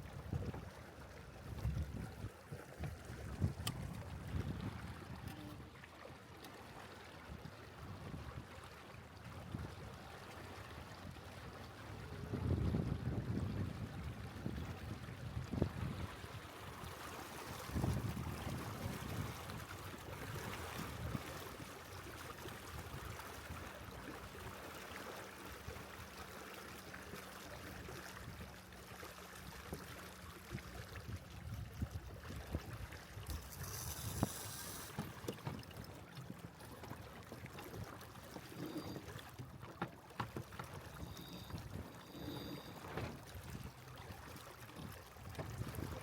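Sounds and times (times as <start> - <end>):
wind on the microphone: 0.0 - 0.7, 1.3 - 5.7, 7.3 - 8.6, 11.8 - 16.8, 17.5 - 21.7, 30.5 - 35.7, 44.8 - 46.0
water washing along a hull: 0.0 - 46.0
brief hiss: 33.5 - 35.1.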